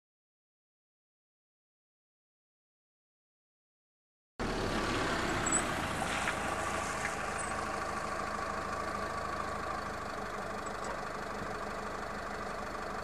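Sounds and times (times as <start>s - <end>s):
diesel car engine running: 4.4s - 13.0s.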